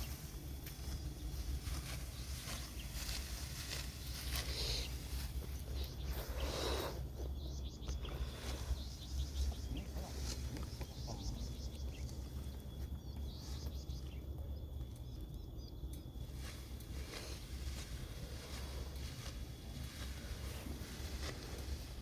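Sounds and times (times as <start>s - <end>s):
rustle: 0.0s - 6.9s, 16.0s - 22.0s
bird chirps: 0.0s - 16.3s.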